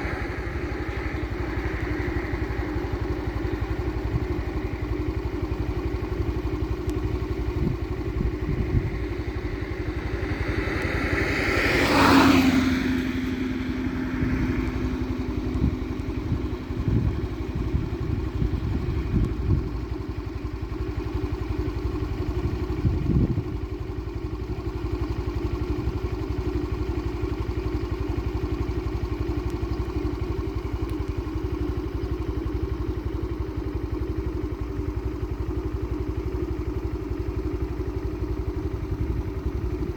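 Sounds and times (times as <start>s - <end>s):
motor-like drone: 0.0s - 5.6s.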